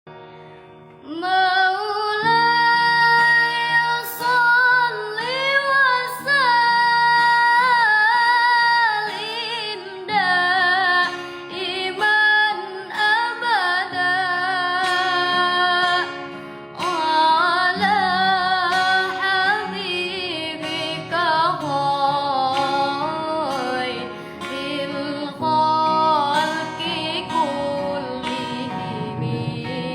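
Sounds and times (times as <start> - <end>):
woman singing ornamented notes: 1.0 - 29.9
steady held accompaniment: 23.5 - 29.9.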